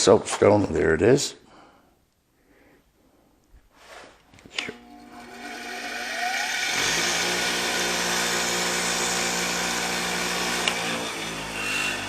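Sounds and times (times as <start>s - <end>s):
power tool motor running: 4.8s - 12.0s.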